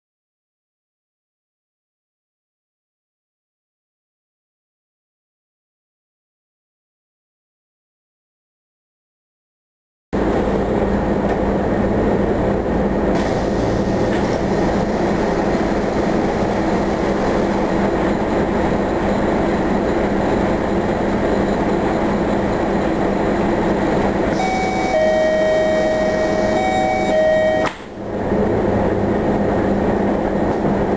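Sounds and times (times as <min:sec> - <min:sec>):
bus engine rumble: 0:10.2 - 0:30.9
steady electronic tone: 0:24.3 - 0:28.1.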